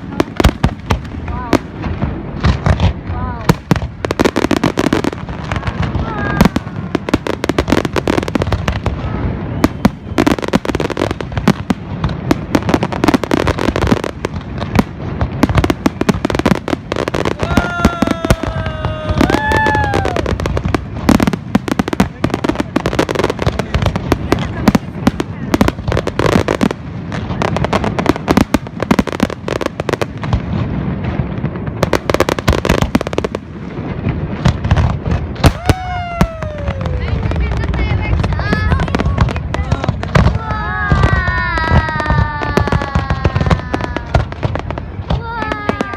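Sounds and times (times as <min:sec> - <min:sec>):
firework bursts: 0:00.0 - 0:45.9
low rumbling and crackle: 0:00.0 - 0:45.9.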